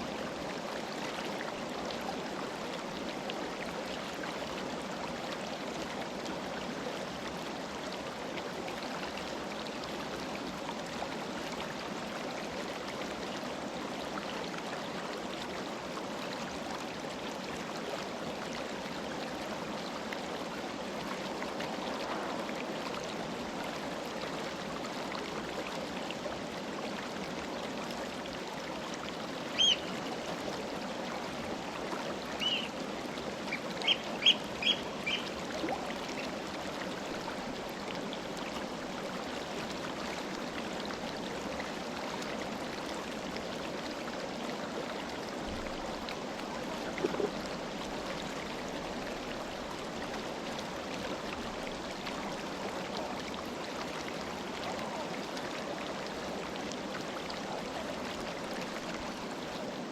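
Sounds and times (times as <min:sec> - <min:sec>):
short high bird chirps: 0:29.6 - 0:29.9, 0:33.8 - 0:35.2.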